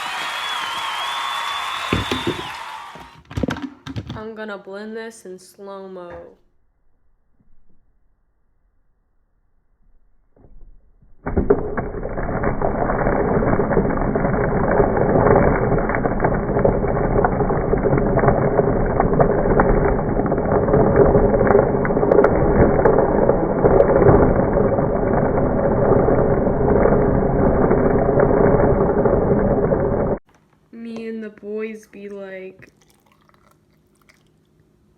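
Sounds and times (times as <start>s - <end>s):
slowed blender motor: 0.0s - 3.1s, 11.4s - 30.2s.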